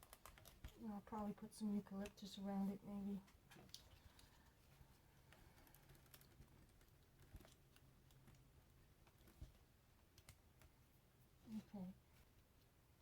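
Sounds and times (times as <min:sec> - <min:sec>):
faint low hum: 0:00.0 - 0:13.0
light clicks and rustles: 0:03.1 - 0:10.8.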